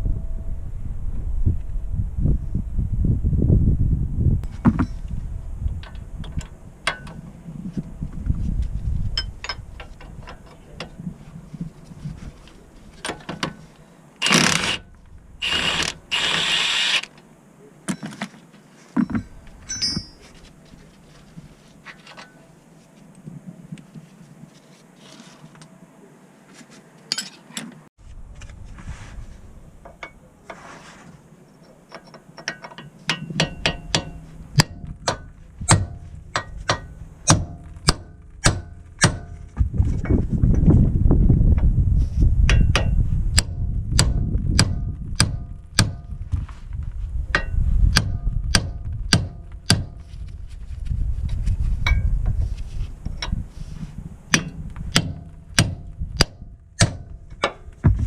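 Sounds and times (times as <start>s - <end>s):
low rumble: 0.0s - 13.0s, 14.9s - 16.2s, 33.6s - 58.0s
sharp metallic clicks and knocks: 5.7s - 7.3s, 31.9s - 40.6s, 42.5s - 46.2s, 47.3s - 50.0s, 54.3s - 58.0s.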